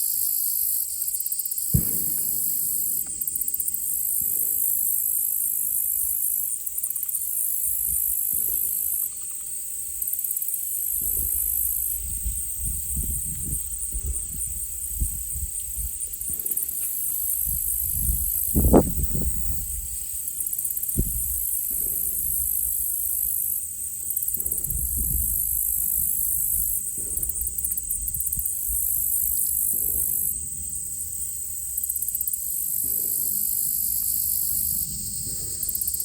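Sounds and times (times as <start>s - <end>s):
insects trilling: 0.0s - 36.0s
distant gunshots: 1.7s - 5.0s.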